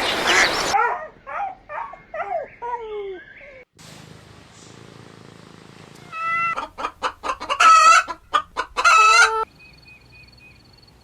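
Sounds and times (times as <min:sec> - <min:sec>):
chicken squawks: 0:00.0 - 0:00.8, 0:06.1 - 0:09.5
chicken clucking: 0:06.2 - 0:09.5.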